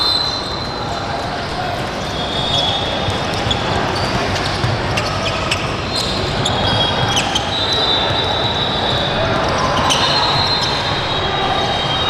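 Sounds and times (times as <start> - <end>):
crowd noise in large hall: 0.0 - 12.0
sneakers squeaking on hardwood: 1.8 - 10.9
basketball bouncing: 2.9 - 7.4.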